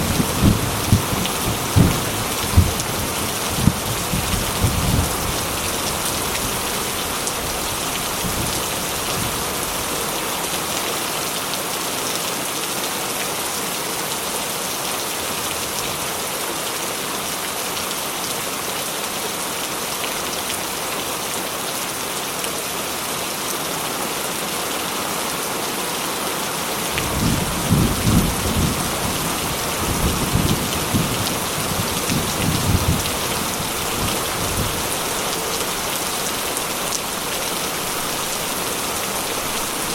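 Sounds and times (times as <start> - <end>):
rolling thunder: 0.0 - 5.3, 27.0 - 34.8
heavy rain on a metal roof: 0.0 - 39.9.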